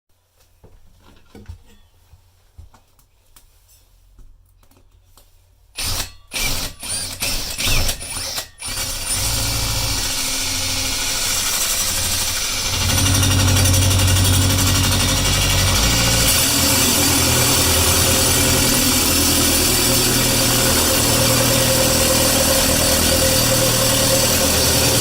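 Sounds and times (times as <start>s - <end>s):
motorised tool running: 7.6s - 25.0s.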